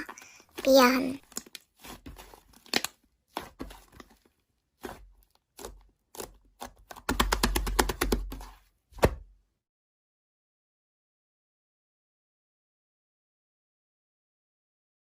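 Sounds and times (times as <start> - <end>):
sharp clicks and cracks: 2.6 - 3.0.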